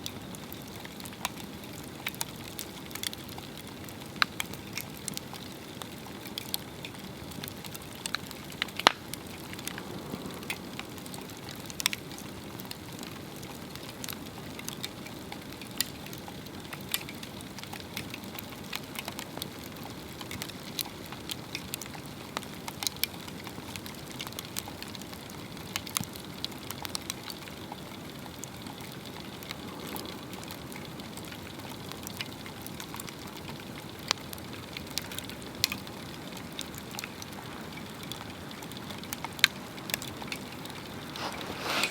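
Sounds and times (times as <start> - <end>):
fire crackling and popping: 0.0 - 41.9
hiss of flames: 8.0 - 12.7, 36.6 - 41.9.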